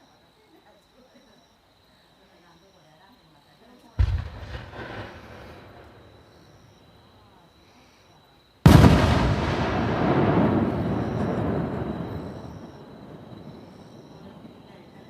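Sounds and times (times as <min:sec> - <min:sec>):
firework boom: 0:04.0 - 0:06.9, 0:08.7 - 0:14.6
firework echo: 0:04.0 - 0:07.2, 0:08.6 - 0:15.0.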